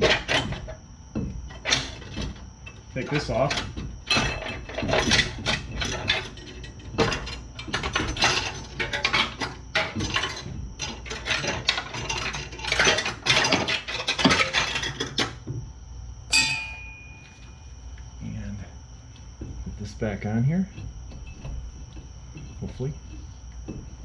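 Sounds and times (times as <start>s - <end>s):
metal brake parts clinking: 16.3s - 17.5s.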